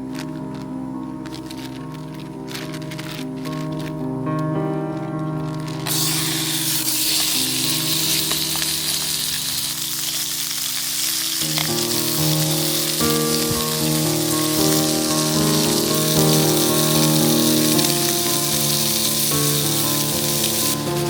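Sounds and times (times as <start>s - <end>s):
background music with held notes: 0.0s - 21.0s
food sizzling in a pan: 5.7s - 21.0s.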